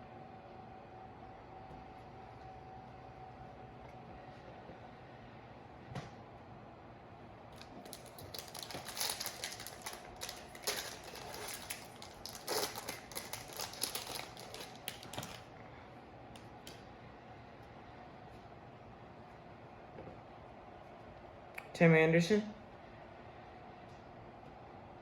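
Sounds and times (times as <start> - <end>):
foil wrapper crackling and tearing: 7.6 - 15.5.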